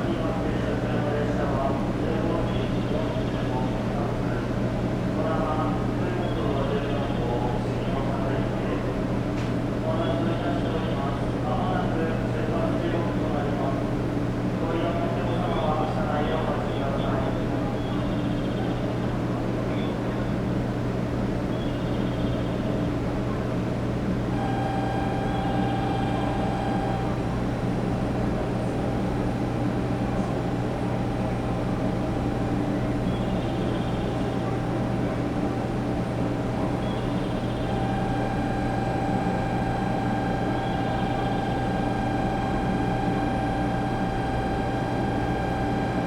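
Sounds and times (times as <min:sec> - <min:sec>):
train equipment low hum: 0:11.7 - 0:46.0
high whine: 0:24.4 - 0:27.6, 0:37.0 - 0:46.0.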